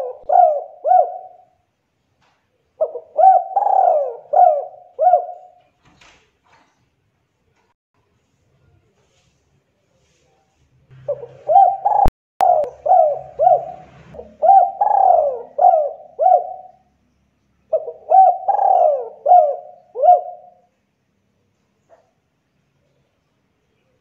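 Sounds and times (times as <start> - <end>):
dove cooing: 0.0 - 1.6, 2.8 - 5.6, 11.0 - 16.9, 17.7 - 20.7.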